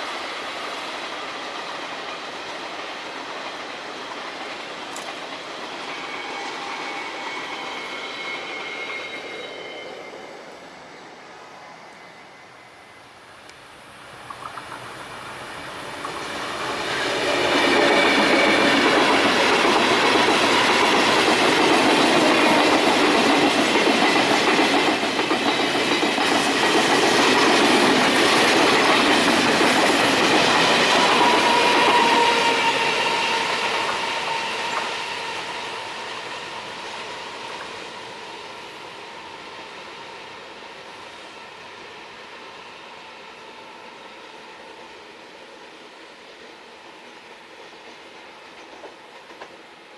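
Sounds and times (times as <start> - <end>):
train wheels clattering on rails: 0.0 - 9.4, 14.2 - 42.4, 46.4 - 49.9
steady high-pitched tones: 5.6 - 13.4.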